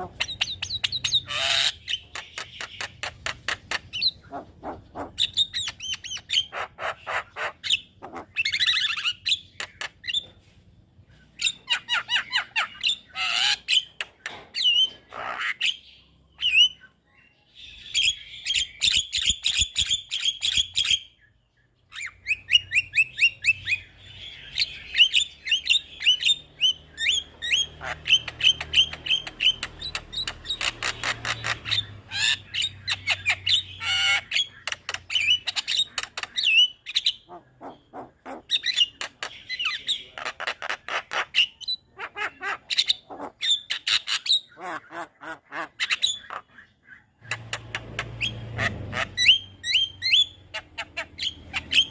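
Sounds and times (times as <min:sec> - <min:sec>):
bird harsh squawks: 0:00.0 - 0:10.3, 0:11.4 - 0:16.9, 0:21.9 - 0:51.9
myna chattering and whistling: 0:21.9 - 0:51.9.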